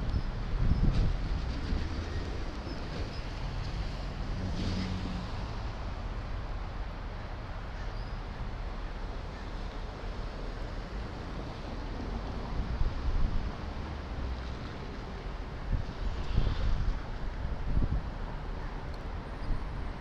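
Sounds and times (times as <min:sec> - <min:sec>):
wind buffeting microphone: 0:00.0 - 0:04.9, 0:10.8 - 0:18.5.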